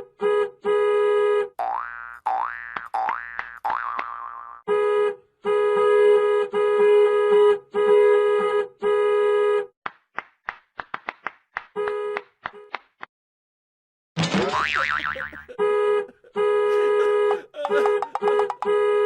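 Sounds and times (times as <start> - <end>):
toy electronic beeps: 17.6 - 18.7.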